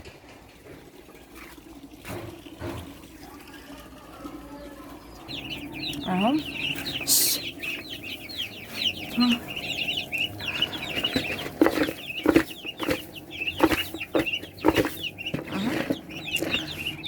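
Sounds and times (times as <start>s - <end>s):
sharp knocks and clatters: 0.0s - 3.2s, 10.8s - 16.8s
chicks cheeping: 1.4s - 17.0s.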